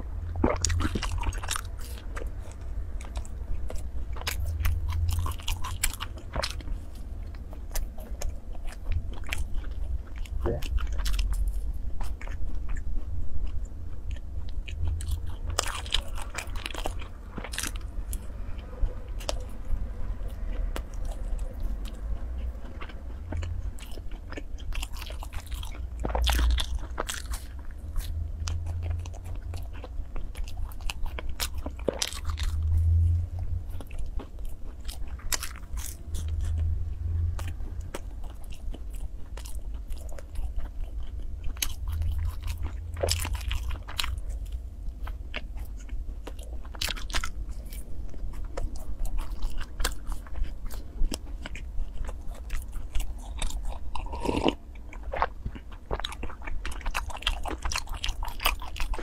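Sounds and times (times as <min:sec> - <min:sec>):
person chewing soft pastry: 0:00.0 - 0:59.0.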